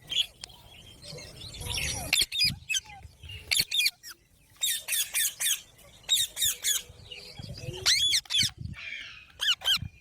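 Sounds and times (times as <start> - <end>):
parrot chirping: 1.6 - 6.8, 7.8 - 10.0.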